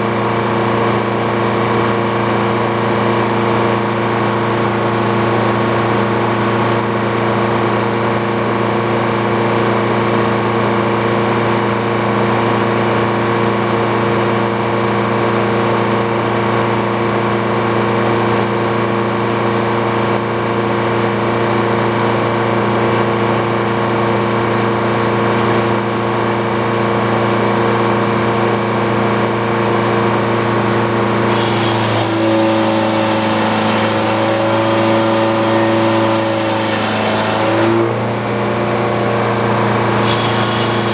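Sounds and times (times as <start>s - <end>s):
sawmill engine running under load: 15.3s - 40.9s.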